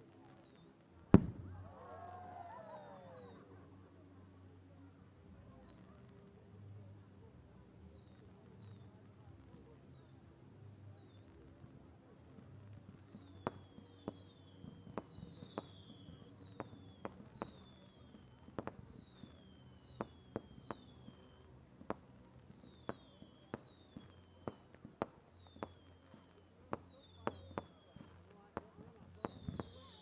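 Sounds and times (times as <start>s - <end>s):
distant firework bangs: 1.1s - 1.6s, 21.8s - 30.0s.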